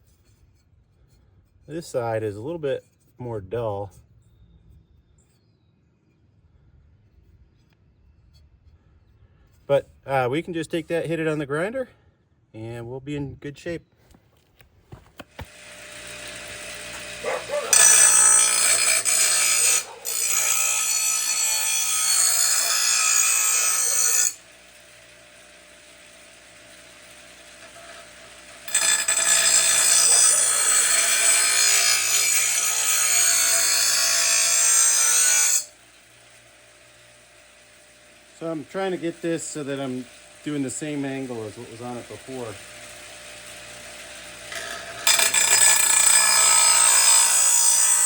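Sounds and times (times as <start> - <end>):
bench grinder motor running: 15.3 - 48.0
blade grinding on wheel: 15.3 - 48.0.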